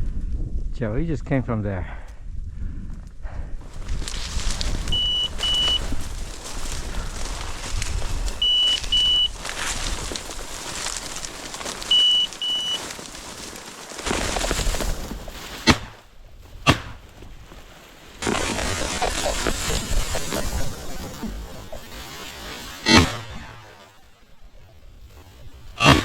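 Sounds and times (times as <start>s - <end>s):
beeper collar double beeps: 4.9s - 5.8s, 8.4s - 9.3s, 11.9s - 12.8s
shotgun blasts: 16.6s - 17.0s.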